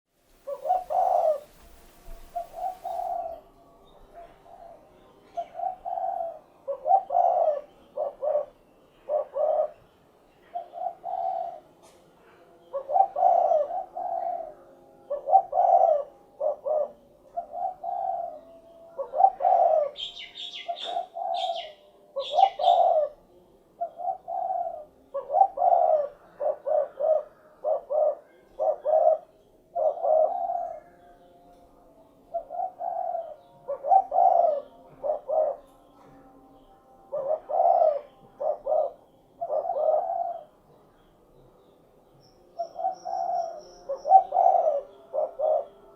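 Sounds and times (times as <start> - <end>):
higher bird chirps: 0.3 - 11.6, 17.3 - 23.1, 42.1 - 45.9
dove cooing: 0.4 - 31.6, 32.2 - 36.1, 37.0 - 40.8, 42.4 - 45.9.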